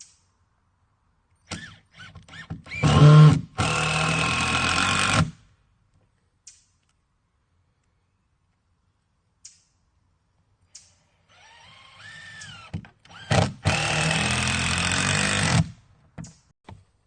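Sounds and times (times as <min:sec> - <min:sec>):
power drill whining: 0:01.5 - 0:05.4, 0:11.3 - 0:15.8.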